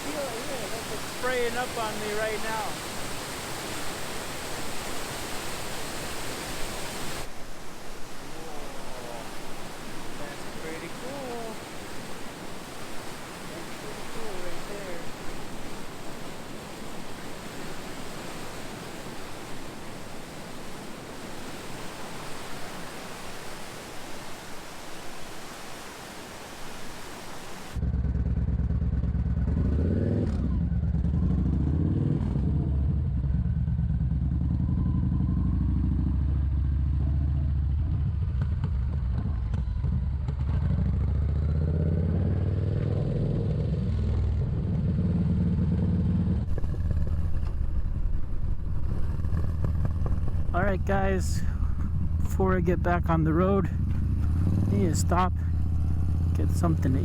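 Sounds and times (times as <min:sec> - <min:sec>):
waterfall rushing: 0:00.0 - 0:27.8, 0:50.6 - 0:53.6, 0:54.3 - 0:57.0
motorcycle engine running: 0:27.8 - 0:50.6, 0:51.5 - 0:52.4, 0:53.4 - 0:57.0.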